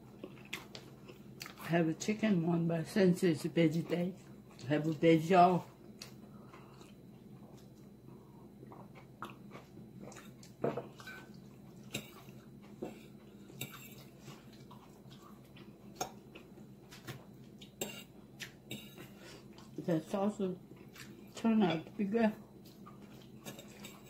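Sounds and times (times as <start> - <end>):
person chewing food: 0.0 - 1.7, 5.8 - 19.8, 20.7 - 21.4, 22.5 - 24.0.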